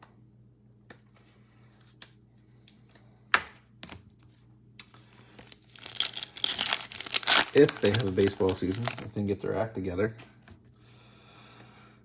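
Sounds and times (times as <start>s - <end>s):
foil wrapper crinkling: 5.2s - 9.3s.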